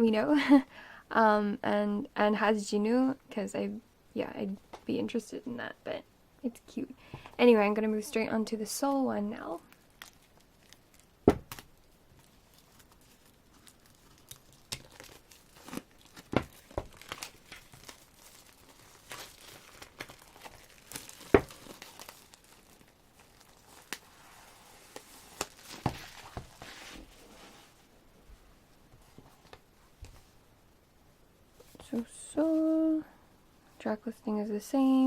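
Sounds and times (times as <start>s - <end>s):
packaging crinkling and tearing: 9.6s - 27.1s.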